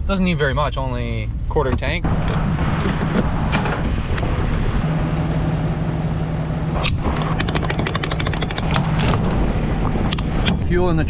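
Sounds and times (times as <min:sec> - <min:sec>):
fast even ticking: 0:07.4 - 0:08.8.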